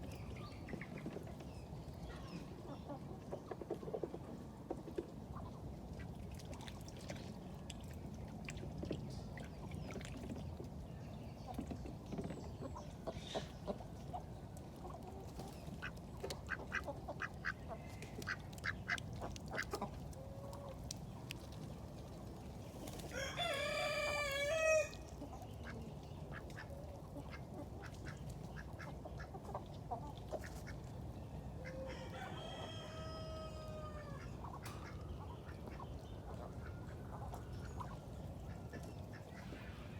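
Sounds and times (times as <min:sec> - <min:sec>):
chicken clucks: 0:02.4 - 0:05.5
rooster crowing: 0:23.1 - 0:25.0, 0:31.8 - 0:34.2.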